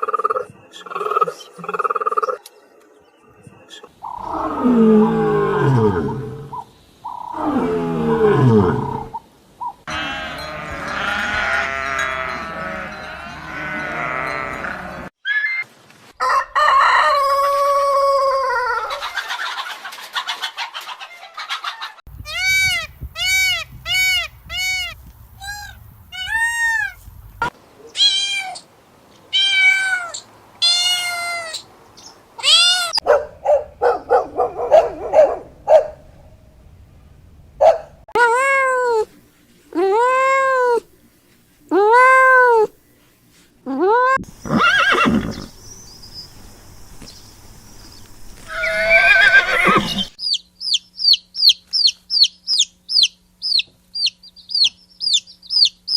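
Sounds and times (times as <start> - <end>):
animal calls: 3.6 - 15.7, 48.4 - 55.9.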